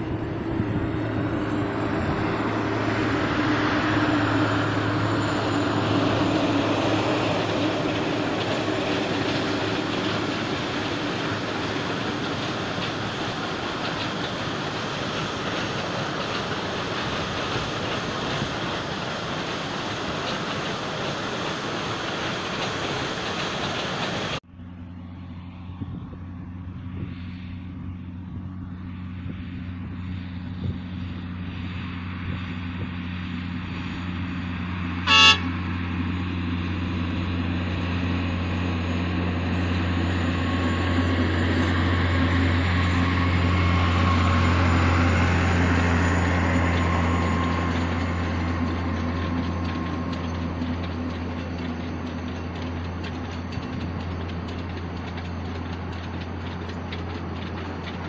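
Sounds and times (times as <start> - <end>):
steady rushing noise: 0.0 - 24.4
wagons rolling by: 0.0 - 24.4, 36.7 - 58.0
diesel locomotive engine drone: 0.0 - 58.0
train horn toot: 35.0 - 35.8.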